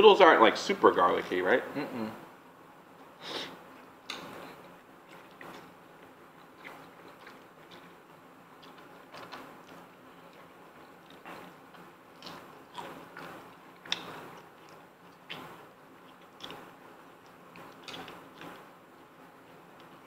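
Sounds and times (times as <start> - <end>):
chewing and mouth sounds: 3.7 - 18.8.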